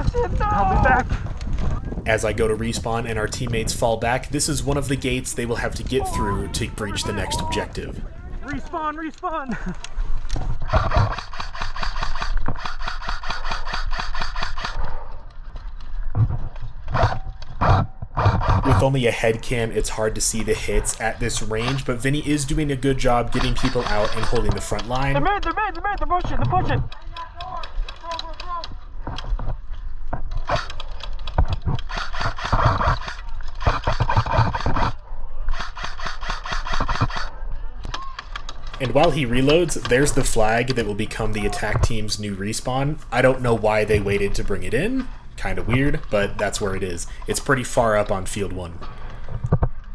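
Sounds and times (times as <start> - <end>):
footsteps and gear rasping: 26.2 - 49.8.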